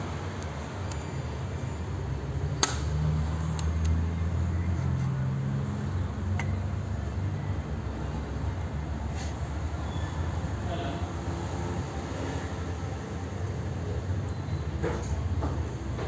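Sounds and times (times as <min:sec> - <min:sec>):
sharp clicks: 0:02.6 - 0:02.9.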